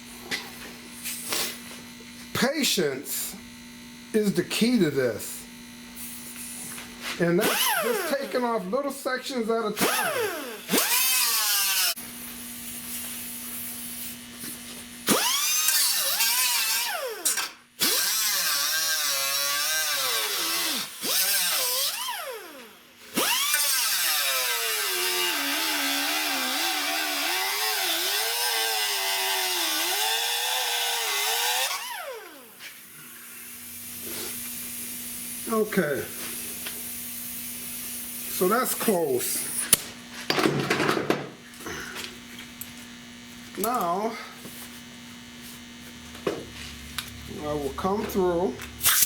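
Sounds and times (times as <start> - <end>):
cut-off wheel cutting metal: 7.4 - 8.3, 9.8 - 12.0, 15.0 - 34.4.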